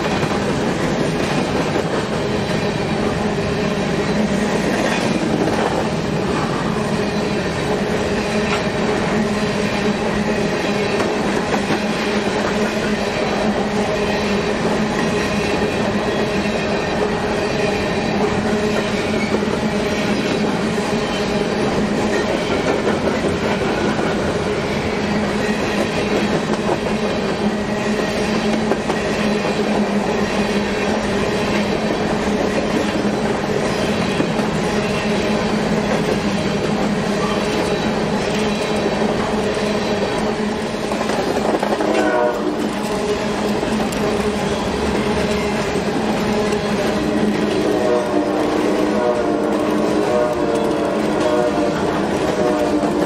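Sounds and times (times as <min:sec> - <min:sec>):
train wheels clicking over rail joints: 0:00.0 - 0:47.6
train hum: 0:00.0 - 0:53.0.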